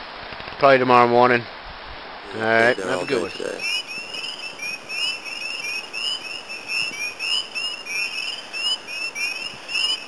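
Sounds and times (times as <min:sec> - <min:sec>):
spring peepers chorus: 0:02.3 - 0:10.0.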